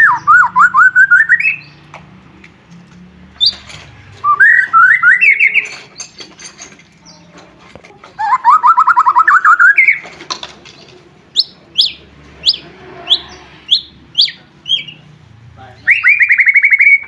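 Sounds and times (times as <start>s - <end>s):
bird singing trills and whistles: 0.0s - 1.8s, 3.4s - 6.3s, 8.2s - 10.0s, 11.4s - 15.1s, 15.8s - 17.0s.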